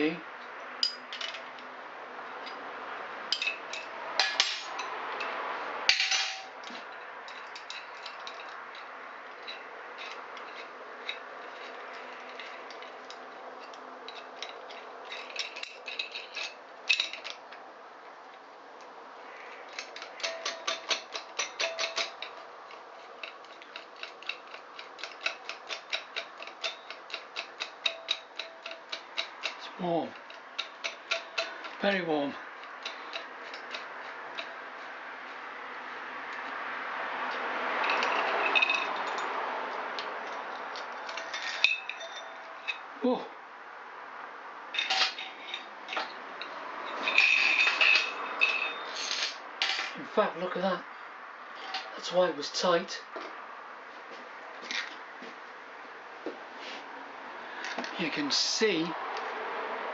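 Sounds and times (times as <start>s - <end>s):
hand tools tapping metal: 3.3s - 17.7s, 19.4s - 35.6s, 37.3s - 42.9s, 44.8s - 50.0s.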